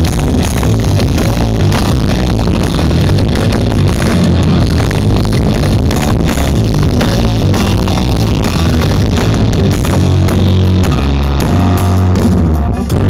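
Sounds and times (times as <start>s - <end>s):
loud music with booming bass: 0.0s - 13.0s.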